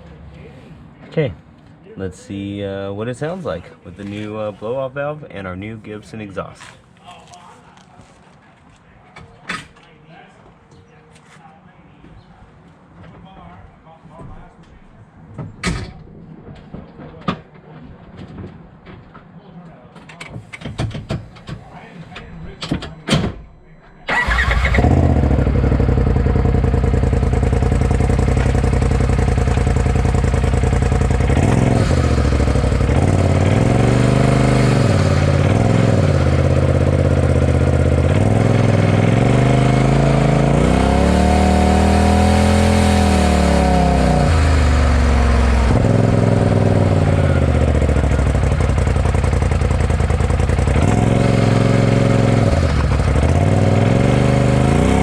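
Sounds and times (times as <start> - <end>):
side-by-side engine revving: 24.1 - 55.0.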